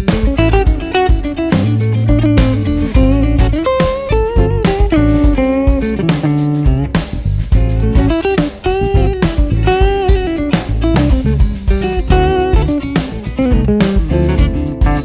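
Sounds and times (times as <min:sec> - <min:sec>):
bass: 0:00.0 - 0:15.0
drums: 0:00.0 - 0:15.0
funky electric guitar: 0:00.0 - 0:15.0.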